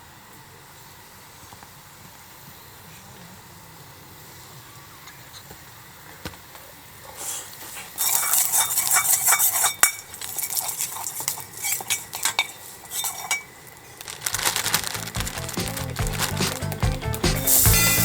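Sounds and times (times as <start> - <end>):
rice sizzling in a wok: 0.0 - 18.0
utensil scraping and clinking wok: 7.7 - 14.0, 14.6 - 18.0.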